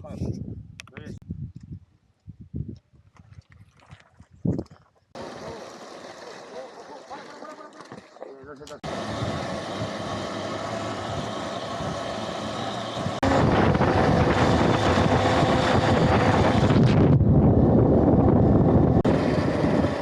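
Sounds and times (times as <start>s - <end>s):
wind rushing over microphone: 0.0s - 3.6s, 8.9s - 20.0s
electric motorbike motor whine: 5.2s - 6.8s, 8.8s - 20.0s.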